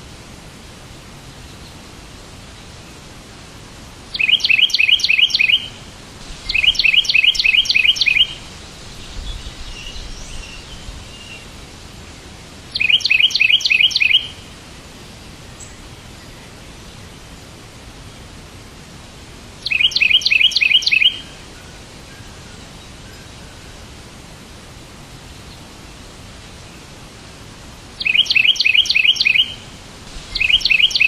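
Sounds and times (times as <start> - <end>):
steady hiss: 0.0 - 31.0
bird chirping: 4.1 - 11.6, 12.7 - 14.4, 19.6 - 21.4, 28.0 - 31.0.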